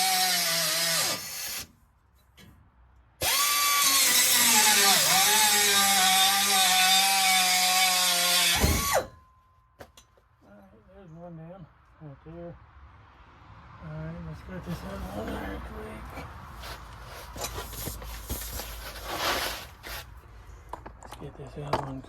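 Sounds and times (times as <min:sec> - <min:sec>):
angle grinder cutting metal pipe: 0:00.0 - 0:01.7, 0:03.2 - 0:09.1.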